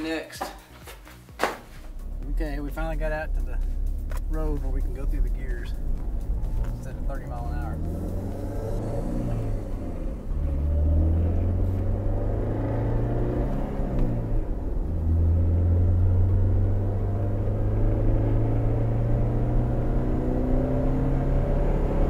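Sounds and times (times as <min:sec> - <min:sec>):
car engine accelerating: 0:01.8 - 0:22.0.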